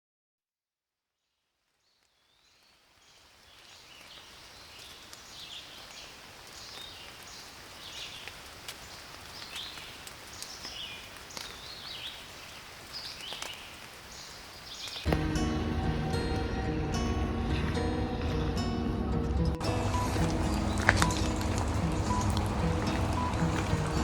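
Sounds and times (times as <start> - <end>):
steady rain in forest: 1.5 - 24.0
bird chirping: 1.9 - 15.1
water drips ticking: 2.6 - 15.2, 19.6 - 24.0.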